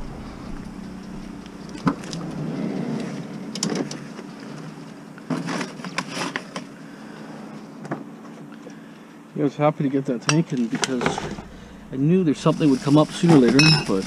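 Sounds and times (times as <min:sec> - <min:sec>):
car engine running: 0:00.0 - 0:05.9, 0:10.4 - 0:14.0.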